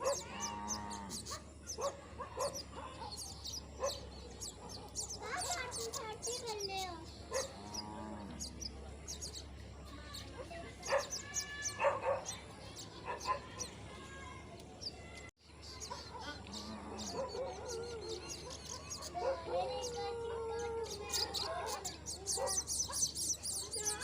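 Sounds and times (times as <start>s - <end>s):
poultry calling: 0.0s - 2.8s
small birds chirping: 0.0s - 24.0s.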